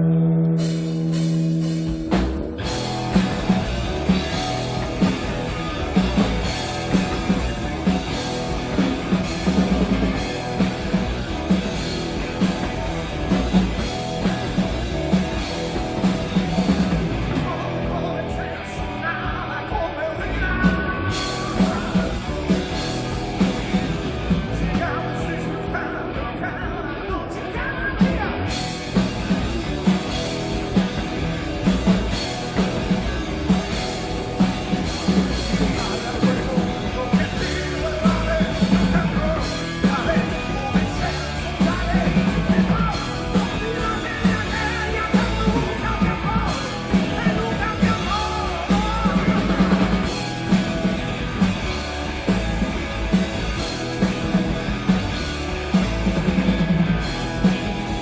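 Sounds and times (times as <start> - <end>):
rock band playing live: 0.0 - 58.0
drum kit beat: 0.6 - 17.9, 20.9 - 24.8, 28.4 - 58.0
person singing: 16.5 - 23.8, 32.1 - 51.0.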